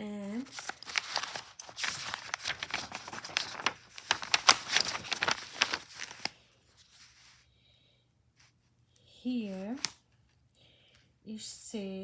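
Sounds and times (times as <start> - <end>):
paper rustling and crinkling: 0.0 - 7.4, 9.4 - 10.0.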